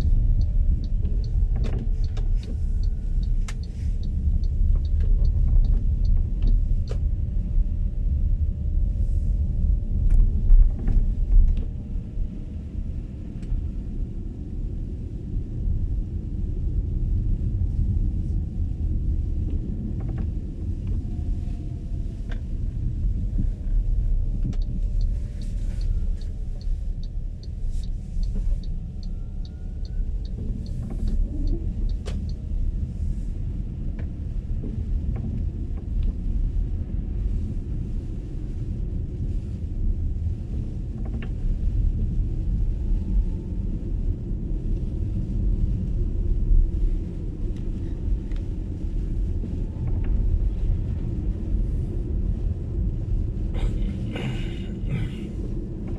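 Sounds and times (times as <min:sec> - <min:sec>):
road and tyre rumble: 0:00.0 - 0:55.9
faint regular ticking: 0:02.0 - 0:06.6, 0:24.4 - 0:32.4.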